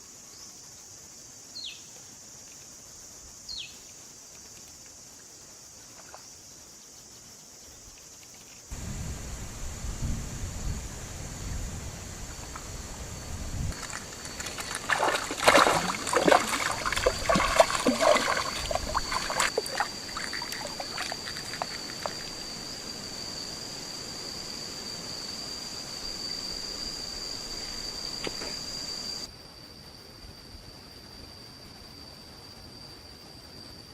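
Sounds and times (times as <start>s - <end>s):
insects droning: 0.0s - 33.9s
water splashing and trickling: 12.3s - 22.8s.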